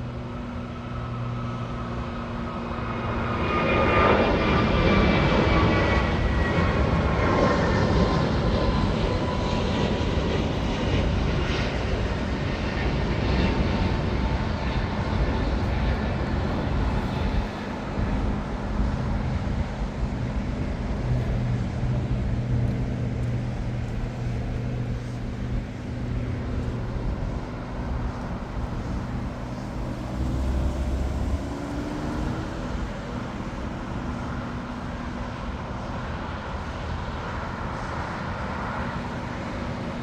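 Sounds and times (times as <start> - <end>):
aircraft engine rumble: 0.0 - 40.0
faint engine whine: 0.0 - 40.0
road traffic: 0.0 - 40.0
droning tones: 22.6 - 36.8.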